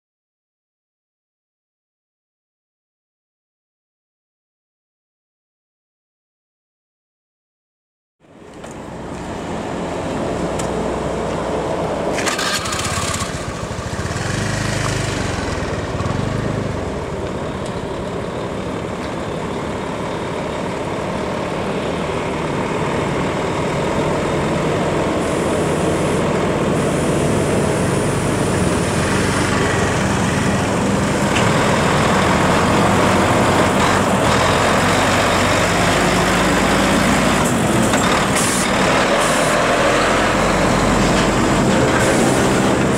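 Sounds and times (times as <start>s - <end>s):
diesel truck engine: 8.2s - 42.9s
road traffic noise: 8.2s - 42.9s.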